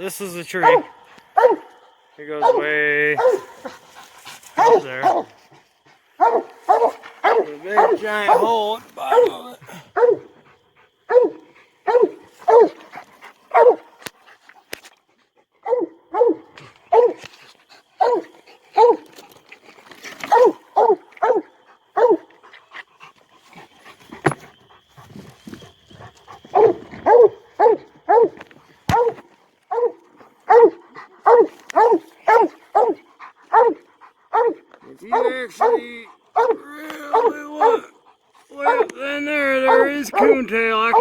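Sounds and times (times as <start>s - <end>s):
dog barking: 0.6s - 3.8s, 4.6s - 5.4s, 6.2s - 10.4s, 11.0s - 12.9s, 13.5s - 14.0s, 15.6s - 17.3s, 18.0s - 19.1s, 20.2s - 22.3s, 26.5s - 41.0s.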